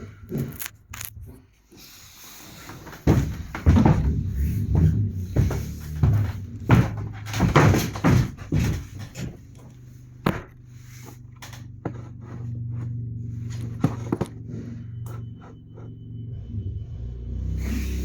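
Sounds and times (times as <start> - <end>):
sharp engine knocks: 3.0 - 9.5
motorcycle engine running: 3.6 - 18.0
kickstarter clunks: 4.9 - 10.6.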